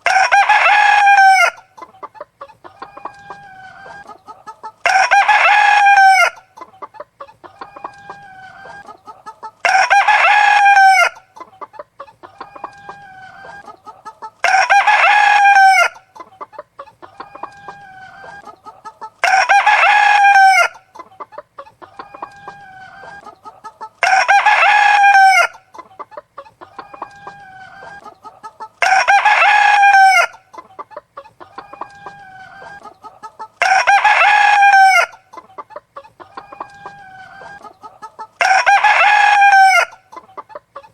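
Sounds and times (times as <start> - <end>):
rooster crowing: 0.0 - 1.6, 4.8 - 6.4, 9.6 - 11.2, 14.4 - 16.0, 19.2 - 20.8, 24.0 - 25.6, 28.8 - 30.4, 33.6 - 35.2, 38.4 - 40.0
hens clucking: 0.0 - 40.9.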